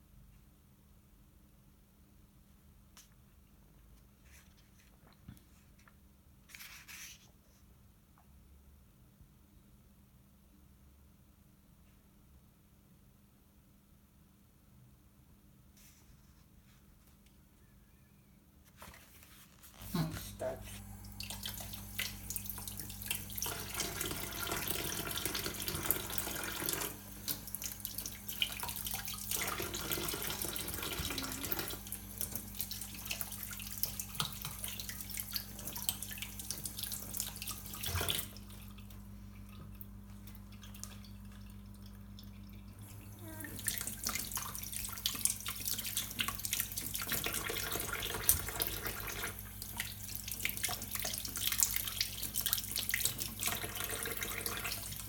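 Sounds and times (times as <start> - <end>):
tap water splashing into sink: 21.0 - 42.5, 43.6 - 55.0.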